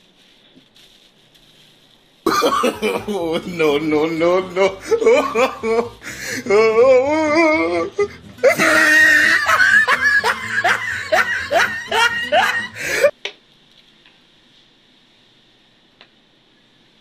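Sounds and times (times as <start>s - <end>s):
warbling cartoon laughter: 2.3s - 13.1s
music: 3.0s - 13.1s.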